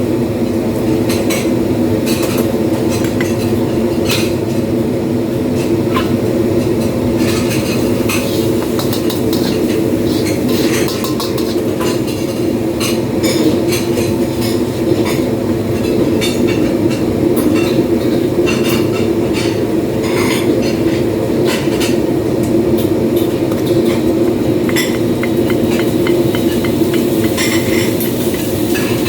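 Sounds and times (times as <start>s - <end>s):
kitchen equipment drone: 0.0s - 29.0s
metal pans clattering: 7.2s - 12.4s, 23.2s - 29.0s.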